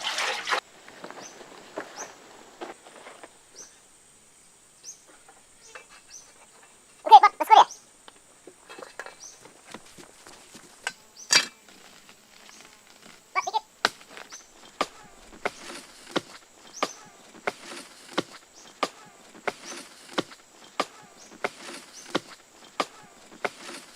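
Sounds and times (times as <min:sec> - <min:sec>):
sharp knocks: 0:14.8 - 0:23.9.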